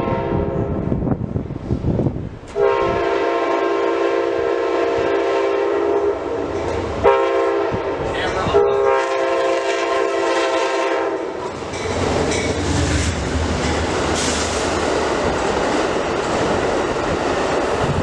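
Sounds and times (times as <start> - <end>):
train air horn: 0.0 - 0.8, 2.6 - 6.4, 7.0 - 7.9, 8.5 - 11.5
locomotive engine rumbling: 0.0 - 18.0
train cars rattling on rails: 1.7 - 18.0.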